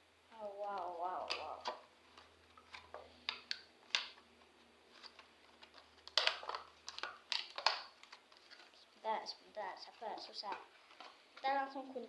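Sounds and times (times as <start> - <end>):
plastic packaging crinkling: 4.8 - 11.4.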